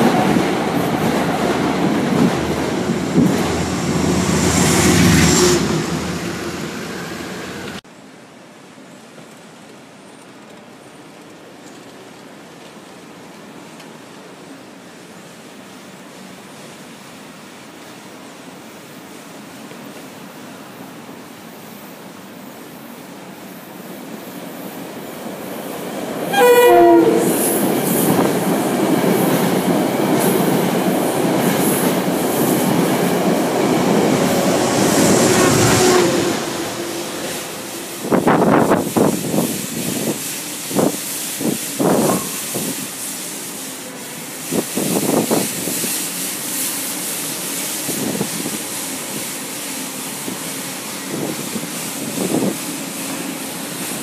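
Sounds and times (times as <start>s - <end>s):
train wheels rumbling on rails: 0.0s - 7.8s, 23.7s - 54.0s
train horn blast: 3.2s - 7.8s, 26.3s - 27.6s, 34.6s - 38.8s.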